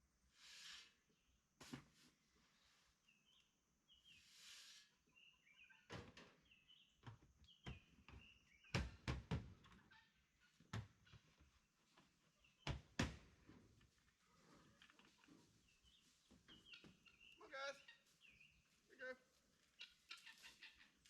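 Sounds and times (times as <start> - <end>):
faint birds chirping: 0.0 - 21.0
knocks and thumps: 7.0 - 9.7, 12.6 - 13.6.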